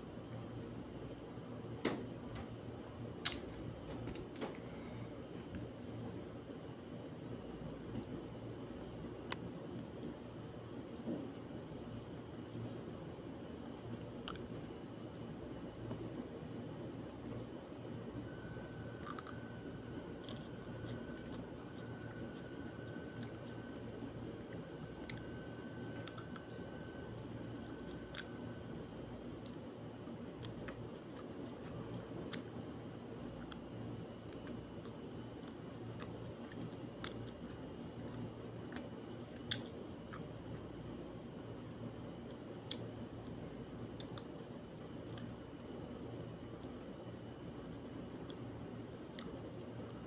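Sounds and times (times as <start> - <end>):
steady low hum: 0.0 - 50.0
chewing with wet mouth sounds: 14.2 - 16.5, 18.3 - 50.0.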